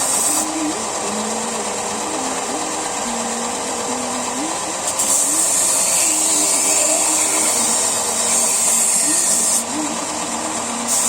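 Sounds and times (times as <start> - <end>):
high grinding hiss of blade: 0.0 - 0.6, 4.8 - 9.7
electric knife grinder running: 0.0 - 11.0.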